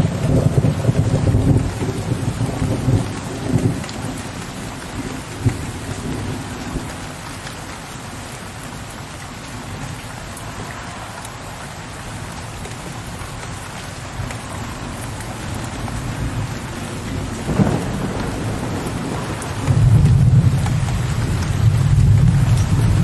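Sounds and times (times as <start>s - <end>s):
low rolling thunder: 0.0s - 7.1s, 14.8s - 23.0s
steady rain hissing: 0.0s - 23.0s.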